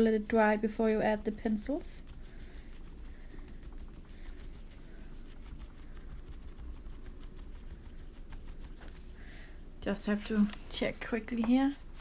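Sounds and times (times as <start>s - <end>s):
scratching on paper: 0.0s - 9.2s
steady low hum: 0.0s - 12.0s.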